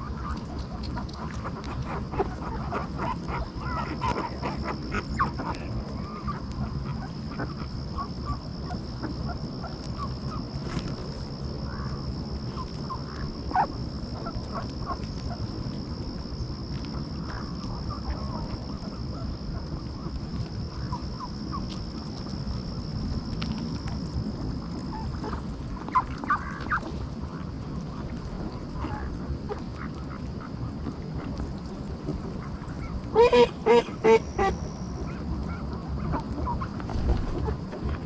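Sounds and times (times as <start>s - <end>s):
ducks quacking: 33.1s - 37.6s.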